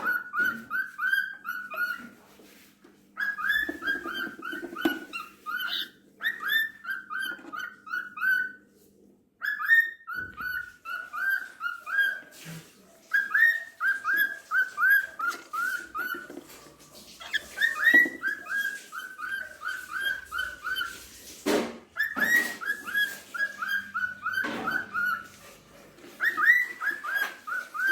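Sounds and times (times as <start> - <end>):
cockatiel whistling: 3.2 - 8.6, 9.4 - 12.3, 13.1 - 16.6, 17.2 - 21.1, 22.0 - 27.9
harsh bird sounds: 9.4 - 21.4, 22.0 - 27.9.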